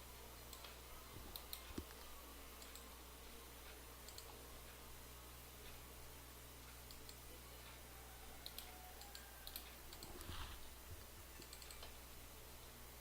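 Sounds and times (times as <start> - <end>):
low electrical hum: 0.0 - 13.0
keyboard and mouse clicks: 0.5 - 2.9, 4.0 - 4.4, 6.7 - 7.8, 8.4 - 12.0.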